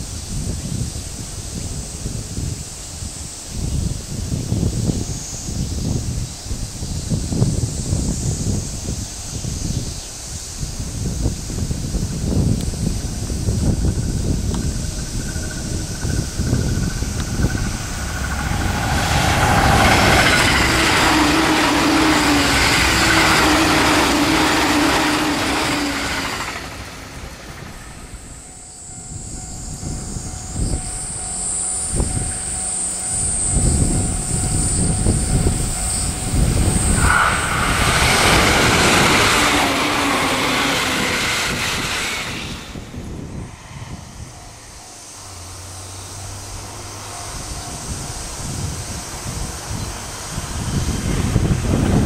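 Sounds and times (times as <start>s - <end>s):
train passing at speed: 0.0s - 52.0s
steady tones: 13.0s - 52.0s.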